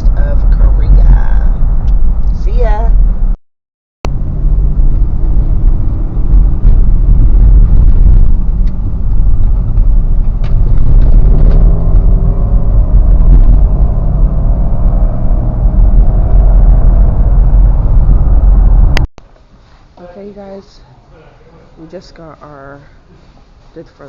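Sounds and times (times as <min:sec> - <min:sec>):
car engine and road noise: 0:00.0 - 0:03.4, 0:04.0 - 0:20.6
drifting hum: 0:04.1 - 0:19.1.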